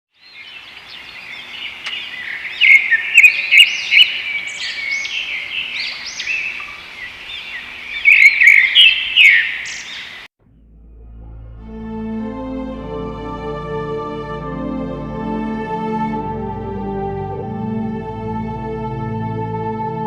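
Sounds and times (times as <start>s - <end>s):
birds chirping: 0.1s - 10.3s.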